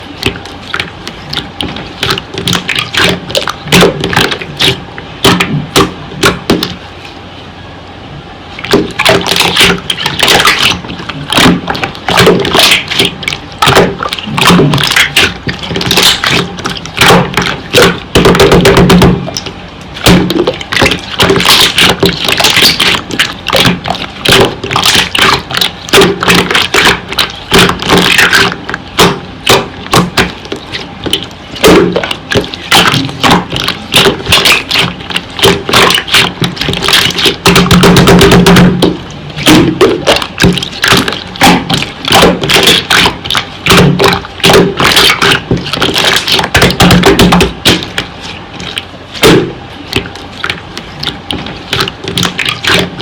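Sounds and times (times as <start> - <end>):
slime squelching with wet clicks: 8.6 - 18.6, 19.3 - 37.7, 38.8 - 48.9, 49.9 - 53.0.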